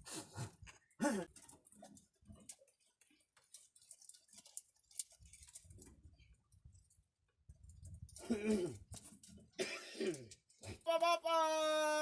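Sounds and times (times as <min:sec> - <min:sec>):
faint clicks and ticks: 0:00.6 - 0:09.5.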